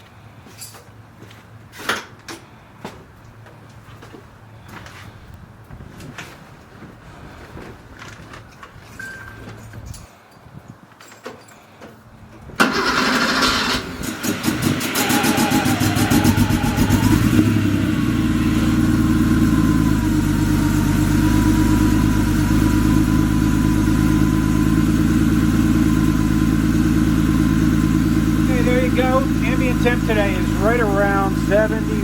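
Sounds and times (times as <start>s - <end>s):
car engine idling: 12.2s - 32.0s
starter motor cranking: 12.6s - 17.6s.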